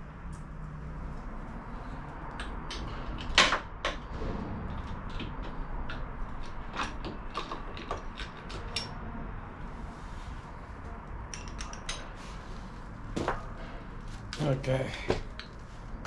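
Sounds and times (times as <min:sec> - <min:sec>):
metal parts and tools clinking: 0:02.4 - 0:04.1, 0:04.7 - 0:09.0, 0:11.2 - 0:12.4.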